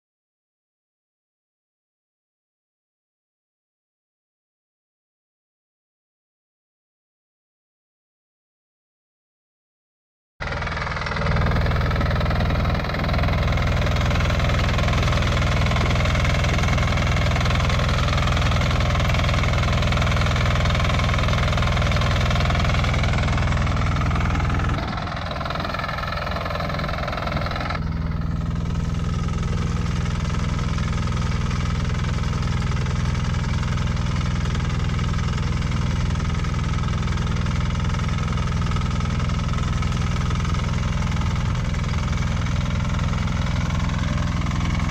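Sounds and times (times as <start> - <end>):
tractor engine running: 10.4 - 44.9.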